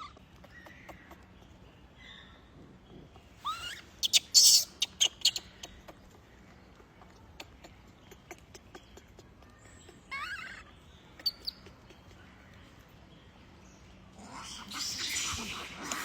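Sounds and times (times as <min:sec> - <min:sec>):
baby monkey squealing call: 0:03.4 - 0:05.8, 0:09.8 - 0:11.7, 0:14.3 - 0:16.0.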